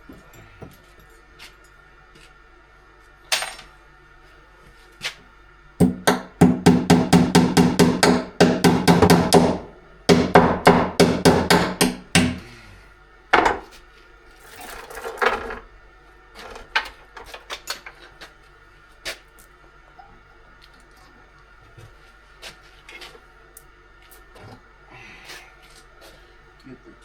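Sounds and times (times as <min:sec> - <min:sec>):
hammer striking metal: 0:05.8 - 0:12.5.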